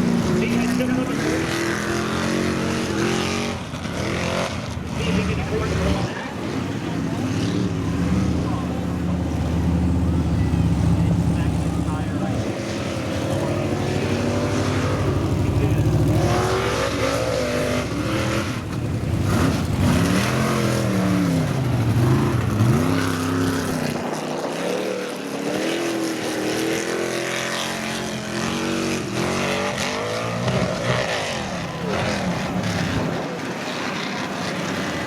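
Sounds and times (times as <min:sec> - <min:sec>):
truck engine revving: 0:00.0 - 0:35.0.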